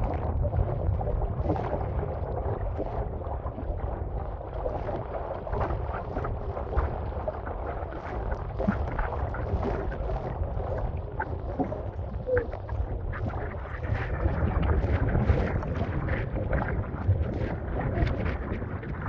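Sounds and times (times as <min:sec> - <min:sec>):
water splashing against kayak: 0:00.0 - 0:19.0
wind buffeting microphone: 0:05.7 - 0:19.0.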